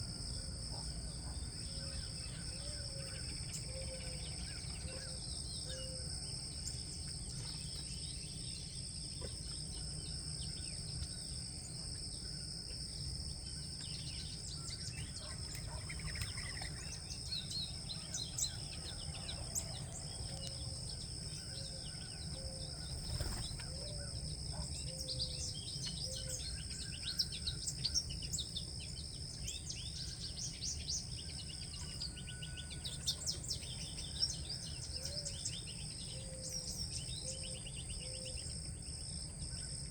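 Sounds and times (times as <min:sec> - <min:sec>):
small birds chirping: 0:10.5 - 0:38.5.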